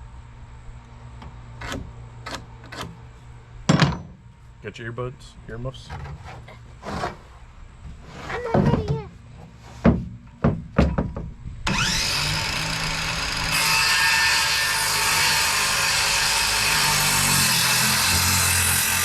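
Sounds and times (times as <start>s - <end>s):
knocks of board handling: 9.8s - 11.3s
electric power saw cutting wood: 11.7s - 19.0s.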